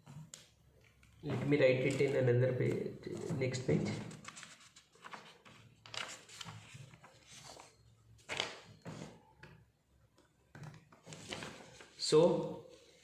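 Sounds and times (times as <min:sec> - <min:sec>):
paper page rustling: 0:04.0 - 0:09.2, 0:11.0 - 0:12.0.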